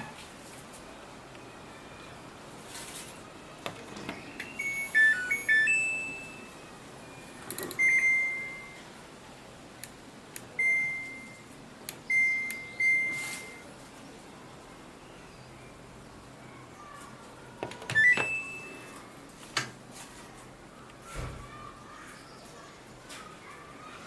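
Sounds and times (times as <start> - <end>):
washing machine beeps: 4.1 - 8.9, 10.5 - 13.7, 17.9 - 19.0.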